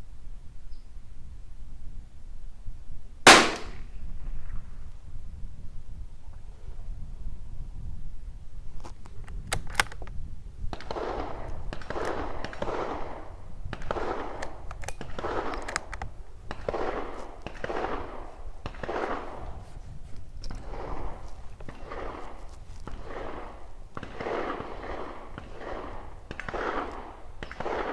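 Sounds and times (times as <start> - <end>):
gunshots: 3.3 - 3.9.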